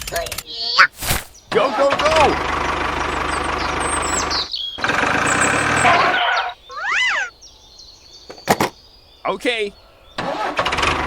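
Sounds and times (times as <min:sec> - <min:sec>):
small engine running: 0:01.6 - 0:06.2, 0:10.2 - 0:11.0
rising and falling chirp: 0:03.0 - 0:08.3.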